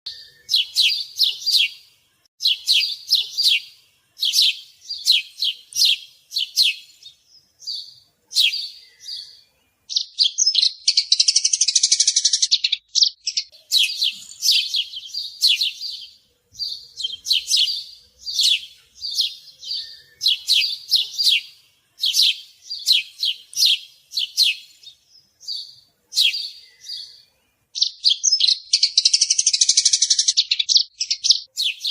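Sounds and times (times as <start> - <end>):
small birds chirping: 0.1 - 31.9.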